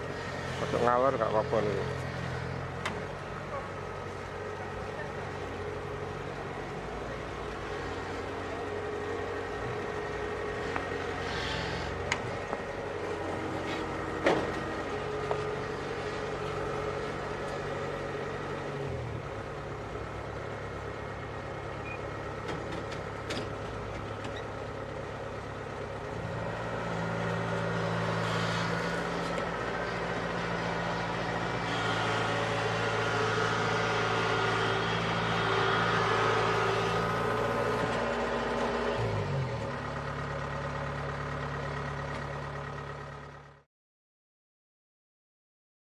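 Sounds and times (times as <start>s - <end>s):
combine harvester engine running: 0.0s - 43.6s.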